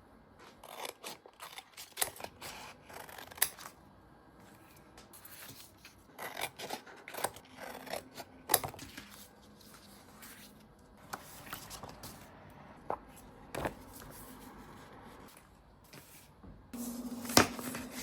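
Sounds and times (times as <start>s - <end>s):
paper rustling: 8.6s - 12.3s.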